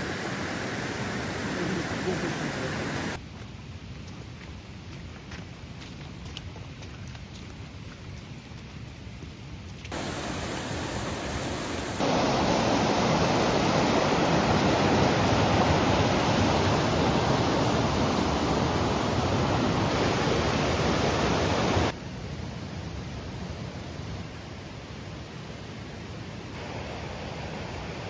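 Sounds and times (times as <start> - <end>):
creek water rushing: 0.0 - 3.2, 9.9 - 25.8, 26.6 - 28.0.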